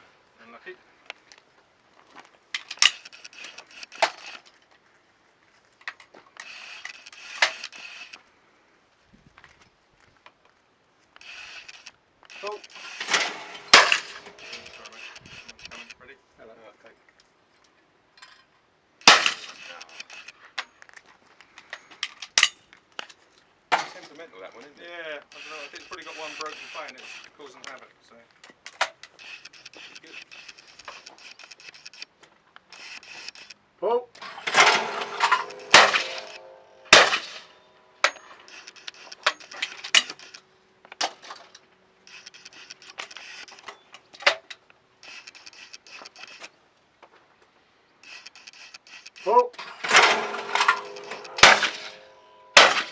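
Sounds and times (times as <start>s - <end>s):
small sharp clicks and clinks: 2.6s - 4.5s, 5.9s - 8.2s, 11.2s - 16.0s, 18.2s - 23.2s, 25.2s - 27.8s, 28.4s - 33.6s, 34.2s - 46.5s, 48.0s - 52.9s
shotgun shots: 12.3s - 15.9s, 19.0s - 20.3s, 34.2s - 40.3s, 49.8s - 52.9s
shotgun shot with echo: 19.1s - 19.8s, 34.5s - 37.5s, 49.9s - 52.9s.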